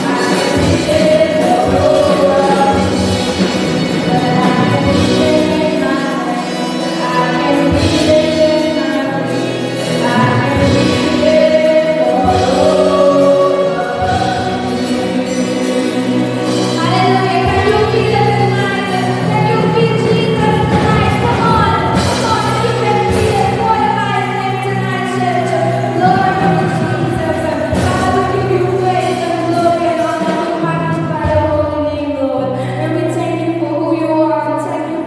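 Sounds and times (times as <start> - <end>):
choir singing praise song: 0.0 - 5.2, 6.4 - 19.3
keyboard and bass accompaniment: 0.0 - 35.0.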